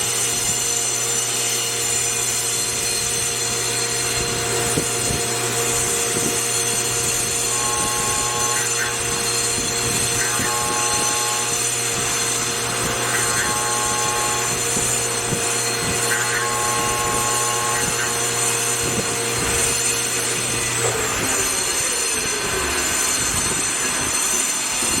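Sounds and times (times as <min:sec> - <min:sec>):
machining center mechanical whine: 0:00.0 - 0:25.0
spindle slowing tone: 0:05.7 - 0:24.4.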